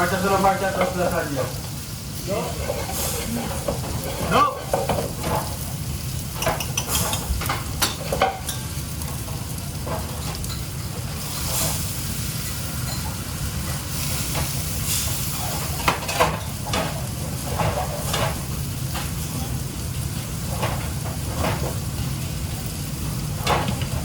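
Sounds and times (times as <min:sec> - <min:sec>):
utensils knocking against pans: 0:00.0 - 0:01.3, 0:02.6 - 0:05.6, 0:06.3 - 0:10.7, 0:14.4 - 0:19.5
food sizzling in a pan: 0:00.0 - 0:24.0.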